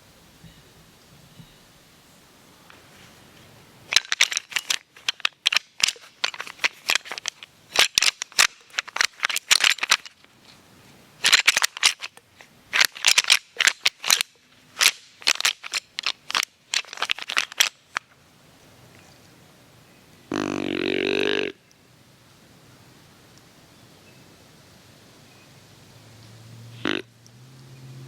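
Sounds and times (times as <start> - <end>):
antlers rattling and clashing: 3.9 - 10.6, 11.2 - 18.1.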